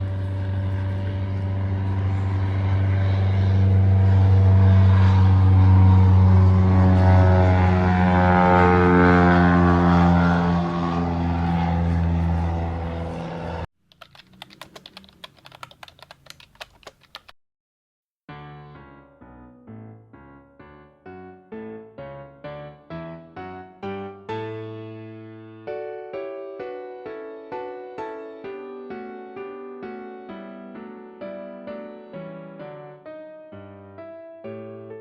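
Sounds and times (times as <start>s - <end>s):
piano music: 0.0s - 13.7s, 18.3s - 35.0s
vehicle engine running: 0.0s - 13.7s
sharp typing-like clicks: 13.9s - 17.4s.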